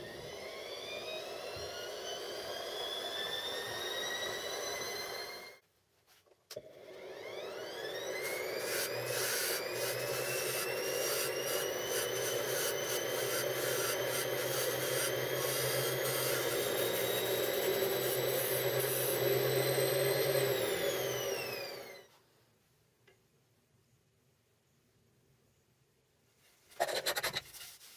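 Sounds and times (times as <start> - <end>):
motor whine: 0.0 - 5.6, 6.6 - 22.1
light rubbing noise: 26.3 - 27.9.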